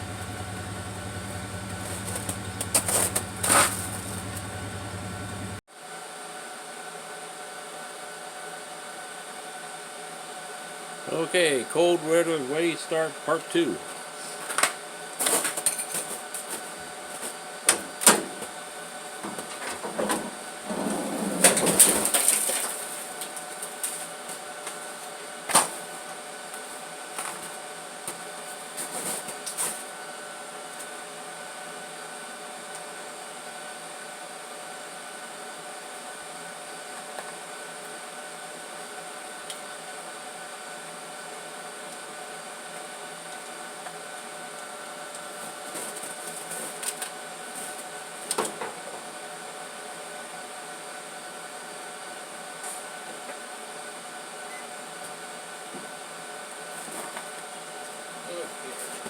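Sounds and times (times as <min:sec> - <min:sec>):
car engine idling: 0:00.0 - 0:05.6
engine clicks and knocks: 0:00.0 - 0:05.6.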